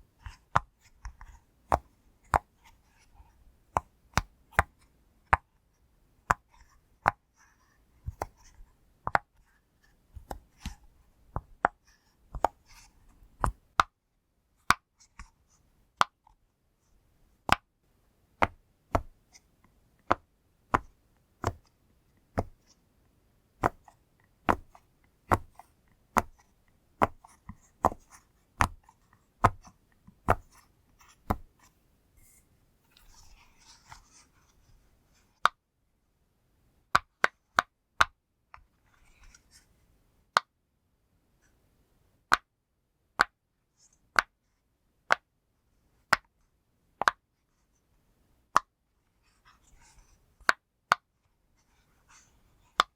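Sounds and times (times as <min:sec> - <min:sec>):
soft rustle: 0:30.5 - 0:35.4.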